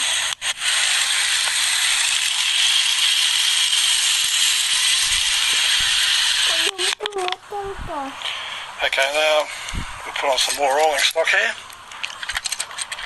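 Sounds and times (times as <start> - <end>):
toy train motor whirring: 0.0 - 8.4.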